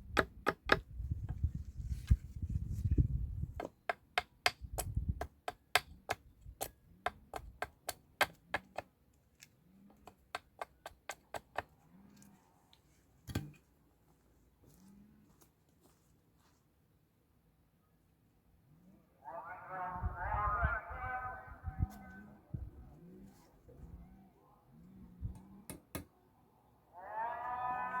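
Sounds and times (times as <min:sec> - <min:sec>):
low rumble: 0:19.9 - 0:23.1.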